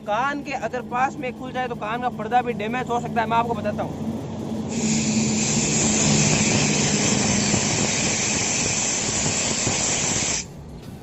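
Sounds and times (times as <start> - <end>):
low hum: 0.0 - 11.0
compressed air hissing: 4.7 - 10.5.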